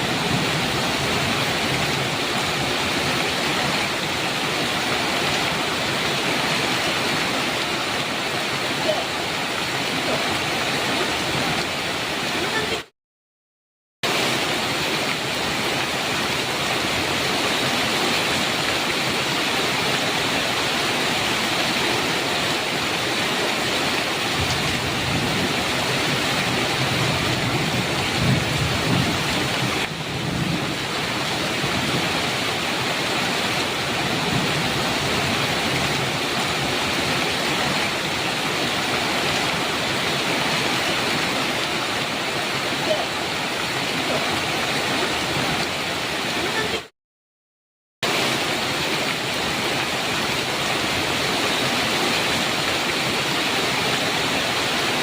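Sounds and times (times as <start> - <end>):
heavy rain falling: 0.0 - 12.9, 14.0 - 46.9, 48.0 - 55.0
thunder rumbling: 24.3 - 32.2.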